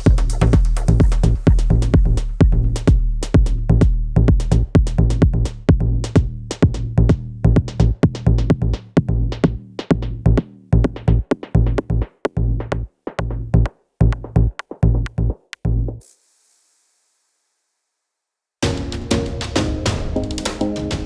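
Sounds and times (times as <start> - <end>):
electronic dance music: 18.6 - 21.0.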